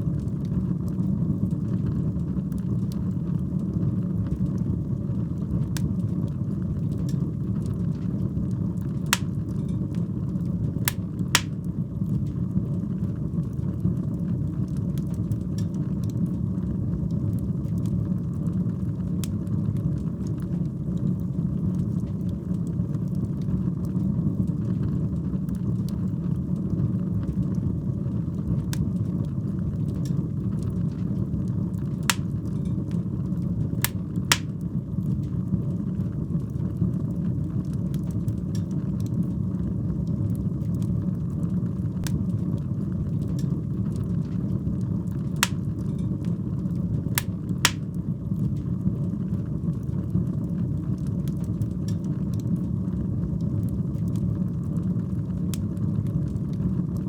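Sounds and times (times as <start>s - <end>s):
fire rumbling: 0.0s - 22.5s, 28.2s - 36.6s, 39.9s - 57.0s
fire crackling and popping: 5.3s - 12.4s, 30.0s - 34.9s, 42.0s - 48.8s.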